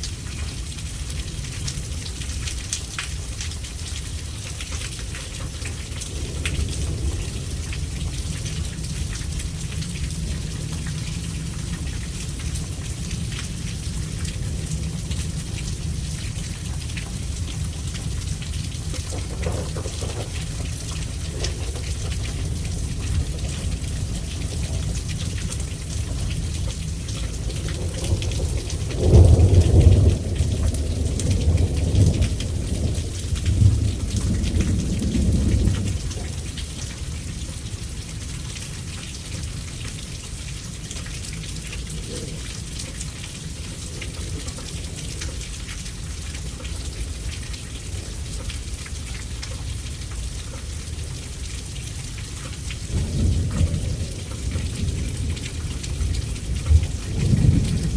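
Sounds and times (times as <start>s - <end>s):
steady rain: 0.0s - 57.9s
thunder rumbling: 5.0s - 37.5s, 52.4s - 57.9s.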